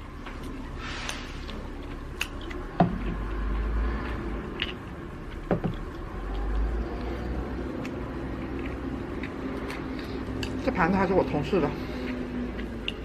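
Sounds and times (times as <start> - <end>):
person chewing: 0.0 - 10.7, 11.8 - 13.0.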